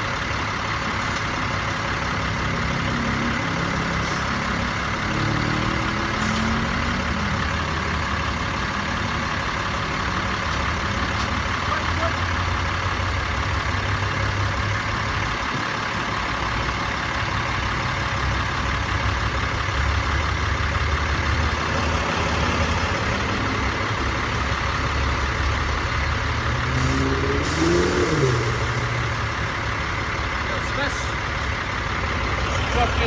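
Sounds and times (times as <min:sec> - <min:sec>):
diesel truck engine running: 0:00.0 - 0:33.0
traffic noise: 0:00.0 - 0:33.0
air hiss: 0:26.8 - 0:29.4.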